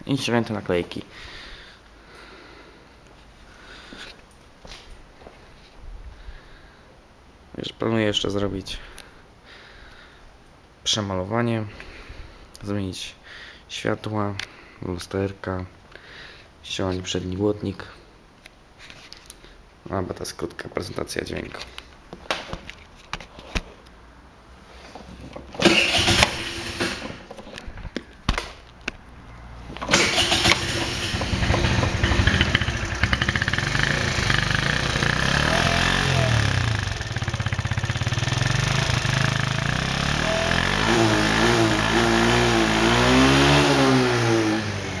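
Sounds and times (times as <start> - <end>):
moped engine starting and idling: 25.5 - 27.3, 29.7 - 45.0
moped engine revving: 25.6 - 27.3, 29.8 - 45.0.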